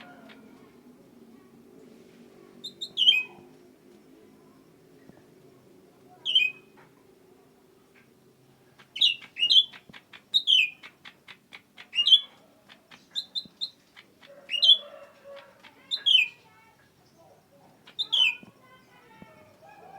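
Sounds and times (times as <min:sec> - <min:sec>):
songbird calling: 0:02.6 - 0:03.4, 0:06.2 - 0:06.7, 0:08.8 - 0:12.4, 0:13.0 - 0:18.9.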